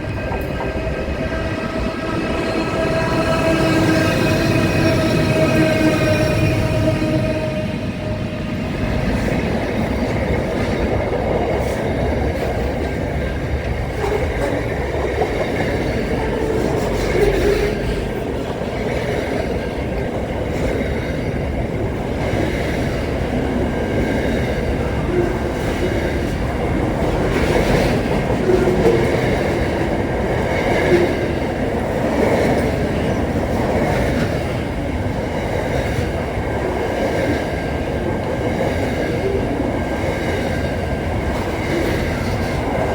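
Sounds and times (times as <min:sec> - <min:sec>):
train cars rumbling and rattling: 0:00.0 - 0:42.9.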